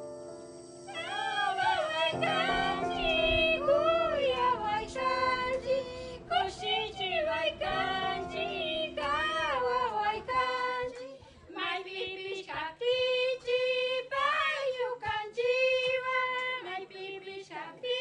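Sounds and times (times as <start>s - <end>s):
high voice singing: 0.9s - 11.2s.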